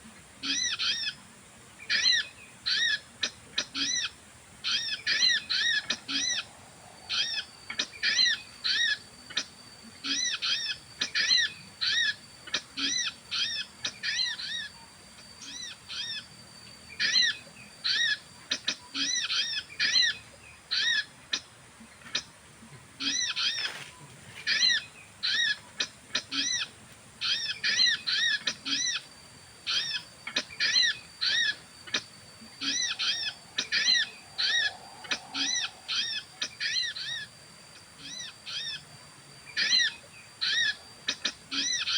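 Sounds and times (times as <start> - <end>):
bird chirping: 24.5 - 41.9.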